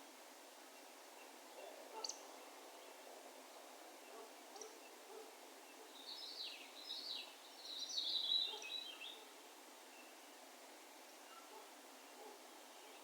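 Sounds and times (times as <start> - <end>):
faint background hiss: 0.0 - 13.0
bird chirping: 5.7 - 9.3.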